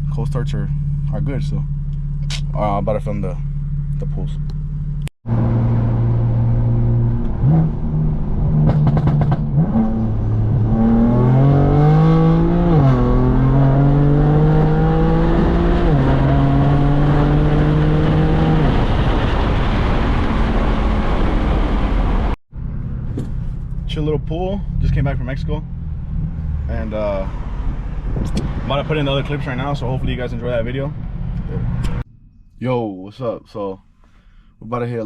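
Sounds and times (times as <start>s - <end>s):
car engine accelerating hard: 1.1s - 23.3s.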